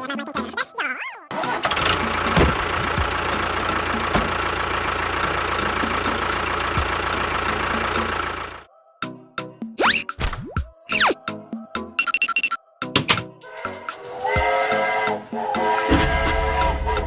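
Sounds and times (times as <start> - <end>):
engine running: 1.3 - 8.7.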